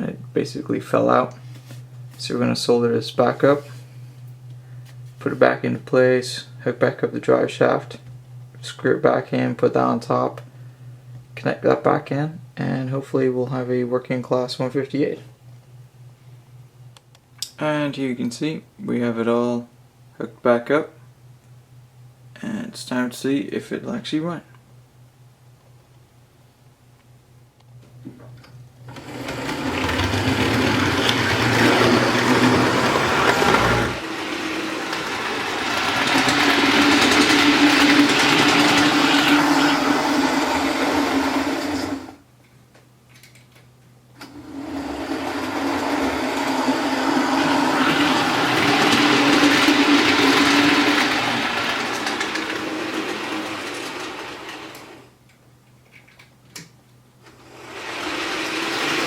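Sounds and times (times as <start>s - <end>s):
model train motor whirring: 28.9s - 42.2s, 44.4s - 55.0s, 57.4s - 59.0s.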